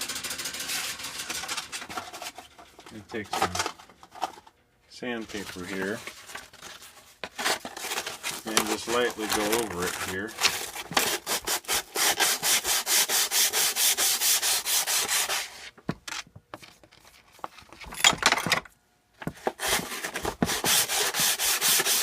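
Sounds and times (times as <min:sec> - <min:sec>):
sandpaper rubbing on metal: 0:00.0 - 0:01.5, 0:08.4 - 0:15.7, 0:19.6 - 0:22.0.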